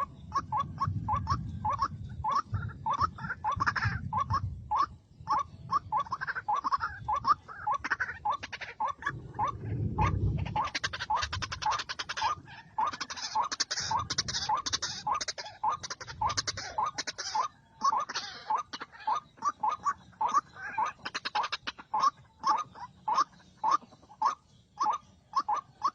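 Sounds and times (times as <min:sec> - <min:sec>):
bird croaking calls: 0:00.0 - 0:25.9
low rumble: 0:09.0 - 0:12.6.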